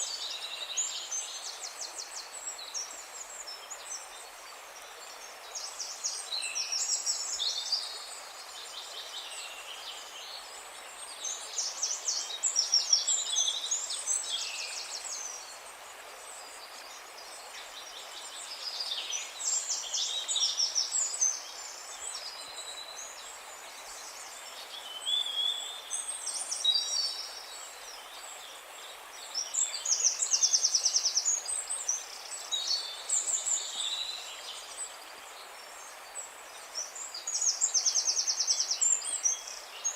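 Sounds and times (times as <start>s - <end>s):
songbirds trilling and warbling: 0.0s - 39.9s
steady background hiss: 0.0s - 39.9s.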